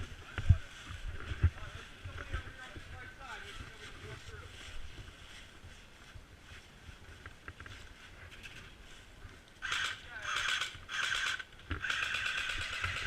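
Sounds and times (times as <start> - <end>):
airsoft gun firing full auto: 9.6 - 13.0.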